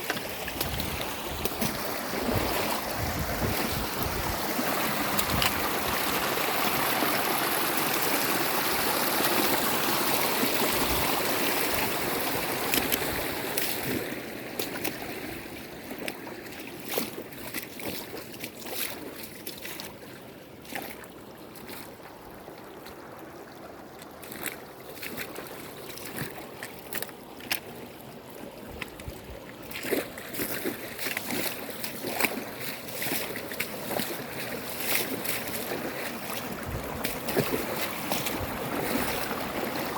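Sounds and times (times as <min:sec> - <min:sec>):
water rushing: 0:00.0 - 0:16.5, 0:29.5 - 0:39.9
water splashing and trickling: 0:00.0 - 0:39.9.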